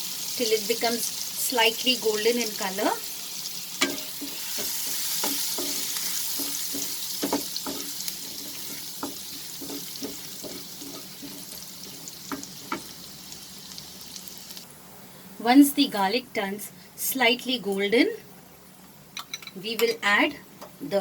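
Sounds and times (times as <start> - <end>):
garlic sizzling in oil: 0.0 - 14.7
utensil scraping a pan: 3.8 - 12.8.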